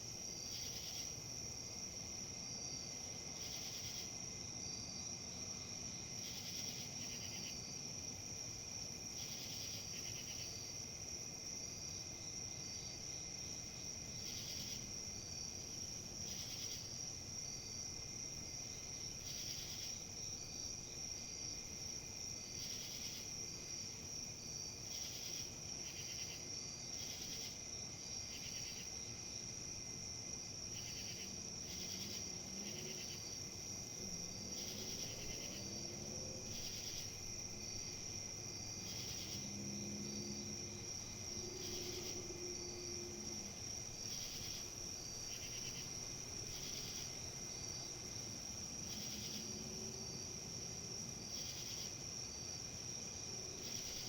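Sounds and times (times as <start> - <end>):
insects chirring: 5.0 - 54.0
insect trills: 12.8 - 54.0.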